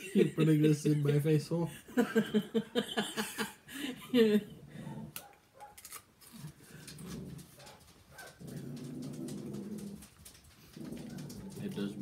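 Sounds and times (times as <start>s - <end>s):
crisp chip crunching: 5.8s - 6.6s.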